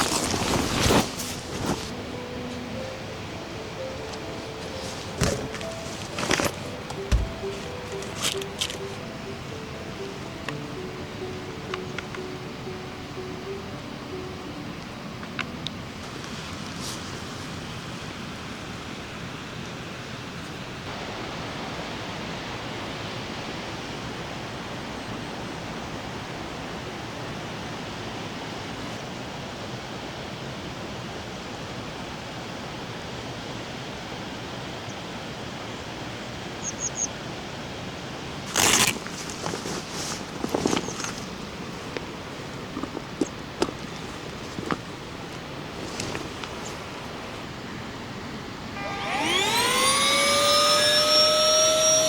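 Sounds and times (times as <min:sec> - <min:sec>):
heavy rain and rushing water: 0:00.0 - 0:36.6.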